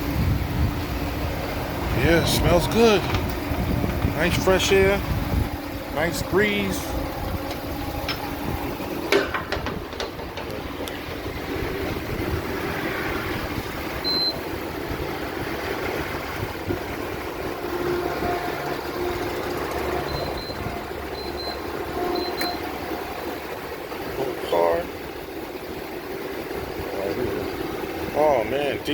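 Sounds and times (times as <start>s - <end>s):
wind on microphone: 0.0s - 6.3s, 6.9s - 18.4s
vehicle engine idling: 0.0s - 28.9s.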